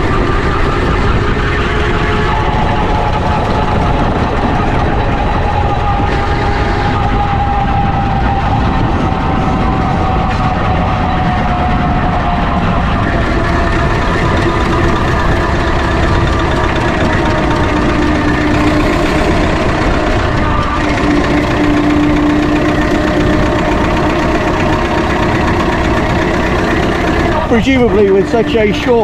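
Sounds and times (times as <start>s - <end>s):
steam engine mechanical rumble: 0.0s - 29.0s
steady tone: 13.2s - 29.0s.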